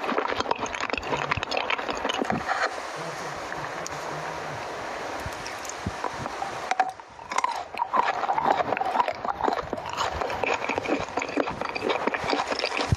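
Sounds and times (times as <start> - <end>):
chocolate crunching while chewed: 0.0 - 2.7, 6.7 - 12.9
steady hiss: 2.2 - 7.8.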